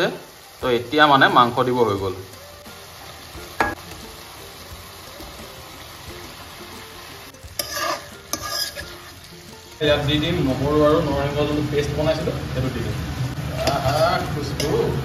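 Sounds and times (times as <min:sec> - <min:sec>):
chicken sizzling in oil: 0:00.0 - 0:15.0
metal spatula scraping pan: 0:06.2 - 0:10.8, 0:13.4 - 0:15.0.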